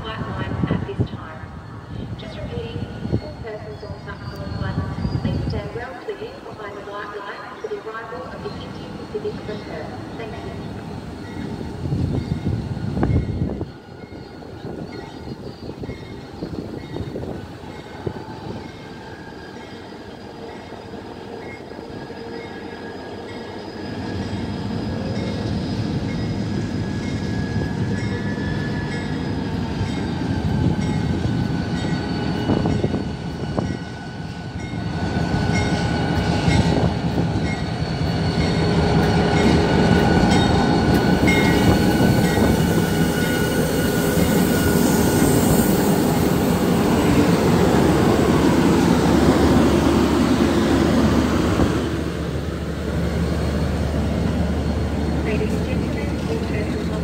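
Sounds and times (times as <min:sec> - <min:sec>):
locomotive engine rumble: 0:23.9 - 0:57.0.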